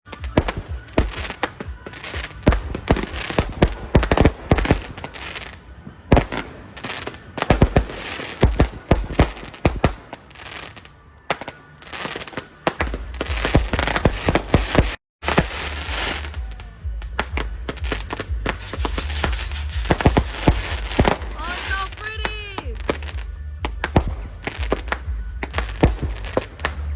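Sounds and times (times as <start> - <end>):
fireworks bangs and crackle: 0.0 - 26.9
low rumble: 15.2 - 22.0, 22.8 - 26.9.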